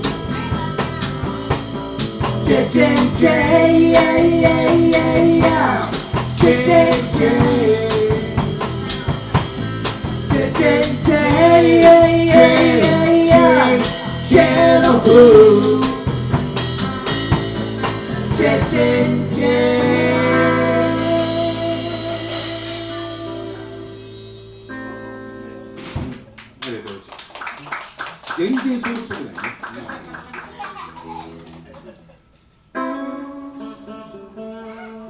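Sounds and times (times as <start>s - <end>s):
drum kit: 0.0s - 24.2s, 25.8s - 26.3s
bass: 0.0s - 27.0s.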